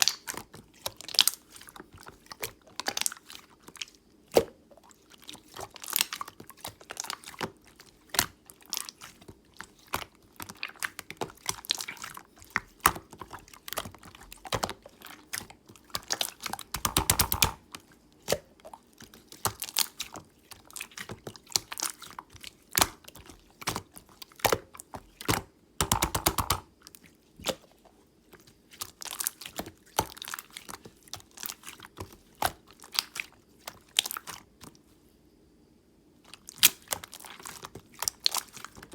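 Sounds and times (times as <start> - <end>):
slime clicking and popping: 16.0 - 17.6, 25.2 - 26.7.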